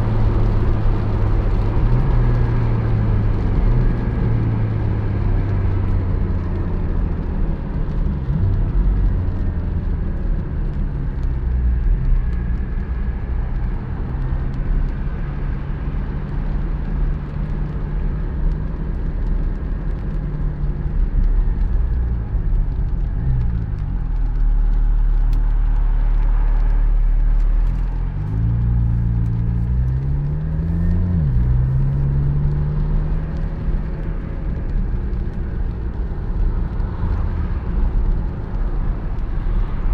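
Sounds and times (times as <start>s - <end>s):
tyre and road noise: 0.0s - 39.9s
car engine revving through gears: 27.7s - 34.0s.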